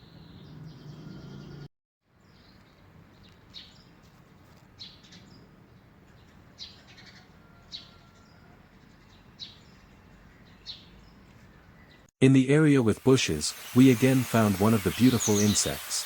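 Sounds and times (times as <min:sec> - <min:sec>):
bird chirping: 0:00.0 - 0:04.0, 0:04.8 - 0:12.1, 0:13.1 - 0:16.0.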